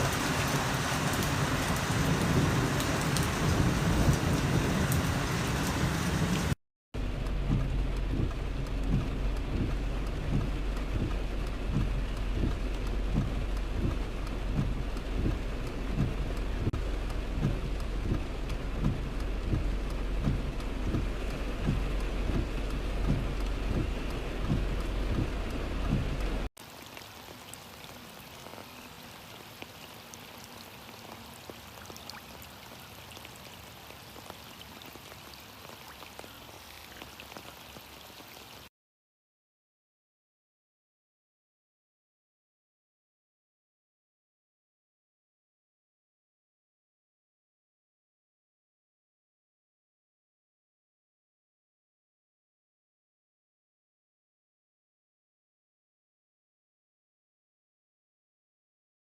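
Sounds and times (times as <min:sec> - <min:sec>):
heavy rain falling: 0:00.0 - 0:38.7
raindrops thudding on a surface: 0:00.0 - 0:38.7
low rumble: 0:03.2 - 0:26.5.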